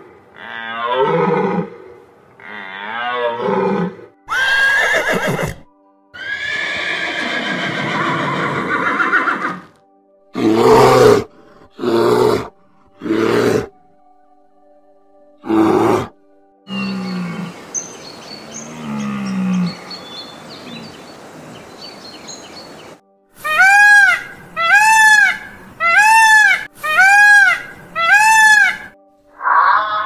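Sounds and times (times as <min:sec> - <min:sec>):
faint background music: 0:00.0 - 0:30.0
horse whinnying: 0:02.9 - 0:05.6, 0:06.2 - 0:09.7, 0:29.4 - 0:30.0
deer calling: 0:16.7 - 0:21.0, 0:23.4 - 0:30.0.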